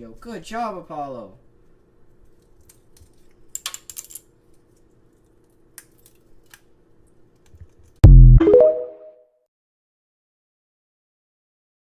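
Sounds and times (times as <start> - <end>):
loud low-pitched tone: 8.0 - 8.8.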